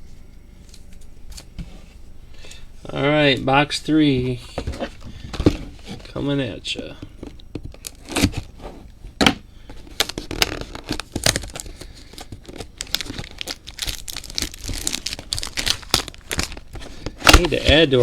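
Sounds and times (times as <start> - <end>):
card box wrapping ripping: 7.8 - 8.5, 10.0 - 18.0.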